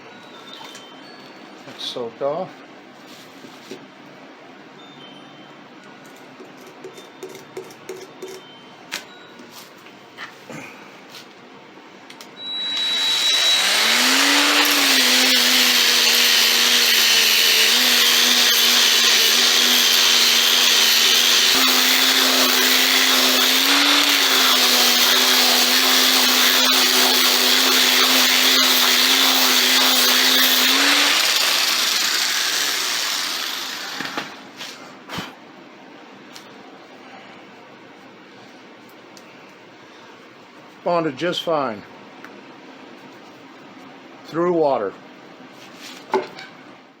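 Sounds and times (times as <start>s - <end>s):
power grinder grinding concrete: 12.7s - 34.2s.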